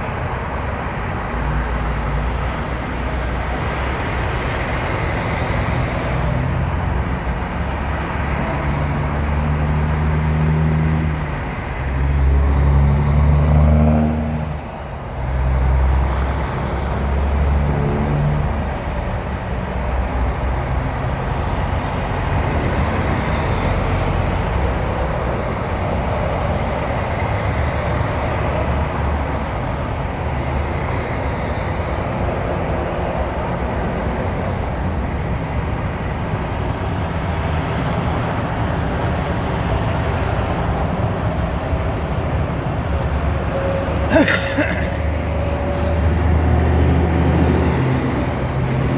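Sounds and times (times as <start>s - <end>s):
heavy truck engines rumbling: 0.0s - 48.9s
road noise: 0.0s - 48.9s.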